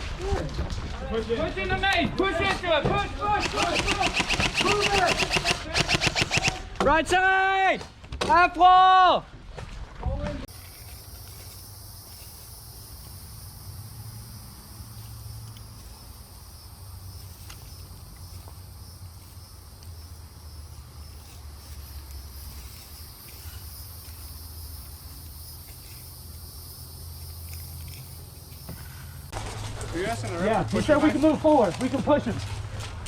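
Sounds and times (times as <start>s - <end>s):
steady high hiss: 10.4s - 29.3s.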